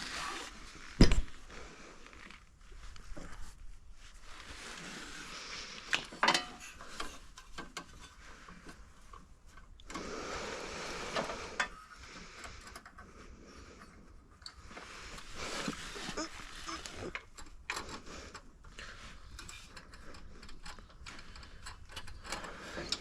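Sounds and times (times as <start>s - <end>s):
hand tools clinking and scraping metal: 4.4s - 10.1s, 13.7s - 23.0s.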